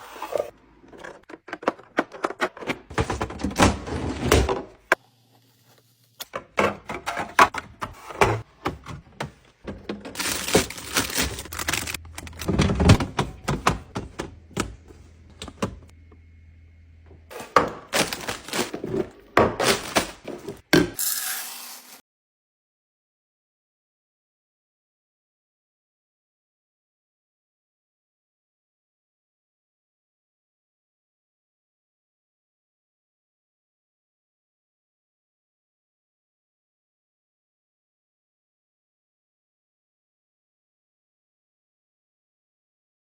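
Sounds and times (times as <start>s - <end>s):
plastic containers and jars clattering: 6.5s - 14.8s, 17.3s - 21.2s.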